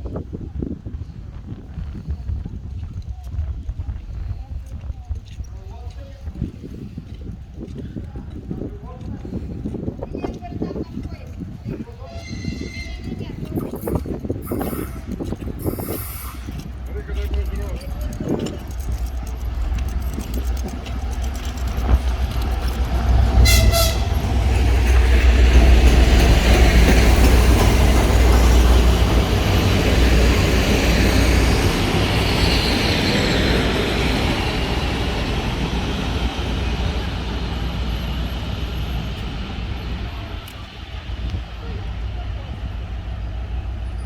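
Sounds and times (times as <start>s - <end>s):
diesel train passing: 5.6s - 44.0s
train horn blast: 23.4s - 24.3s.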